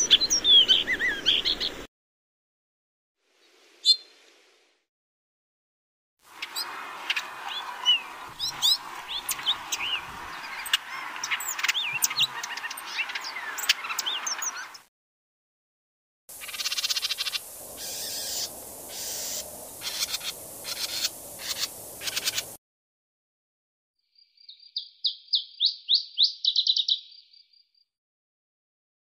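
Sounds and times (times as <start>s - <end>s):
birds chirping: 0.0s - 1.9s, 6.3s - 14.9s, 16.3s - 22.6s, 24.2s - 27.6s.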